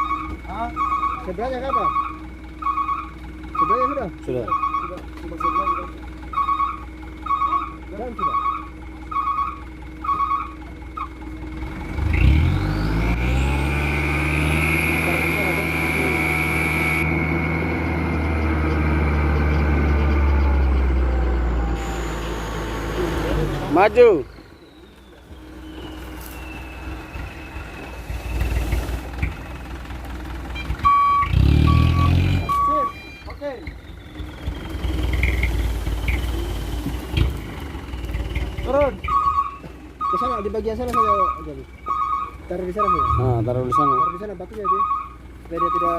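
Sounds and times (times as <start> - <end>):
short electronic beeps: 0.0 - 11.1, 13.6 - 17.5, 30.5 - 36.6, 39.0 - 45.9
diesel truck engine revving: 0.0 - 45.9
rising whine: 12.4 - 29.5.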